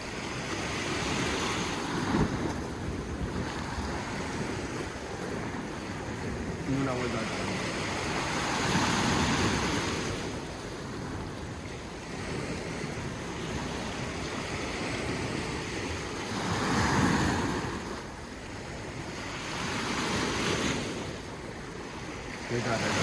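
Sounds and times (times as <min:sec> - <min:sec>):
sea surf washing in: 0:00.0 - 0:23.0
wind buffeting microphone: 0:00.0 - 0:23.0.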